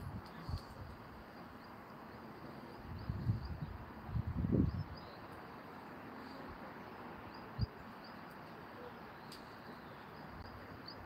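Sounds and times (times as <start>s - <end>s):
light rain hiss: 4.8s - 11.0s
faint high bird chirps: 6.2s - 11.0s.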